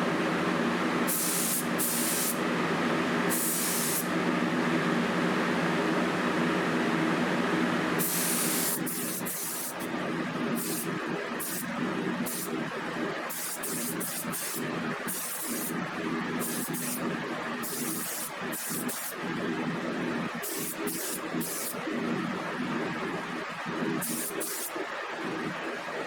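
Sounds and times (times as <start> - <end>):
air spray gun hissing: 1.1 - 2.4, 3.3 - 4.1, 8.0 - 9.9, 10.6 - 11.6, 12.3 - 12.5, 13.3 - 15.7, 16.4 - 17.0, 20.5 - 21.8.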